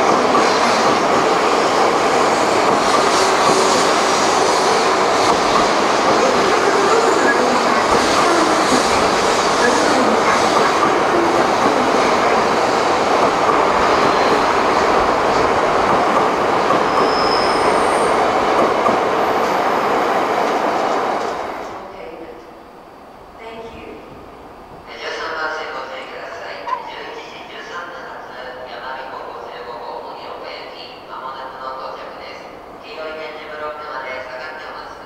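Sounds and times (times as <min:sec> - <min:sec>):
train wheels on rail: 0:00.0 - 0:21.8
high-pitched wheel squeals: 0:16.9 - 0:18.1.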